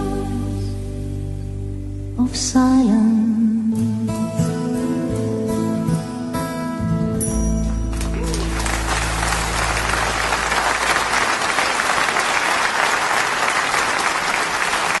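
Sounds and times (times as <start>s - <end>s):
audience applauding: 7.9s - 15.0s.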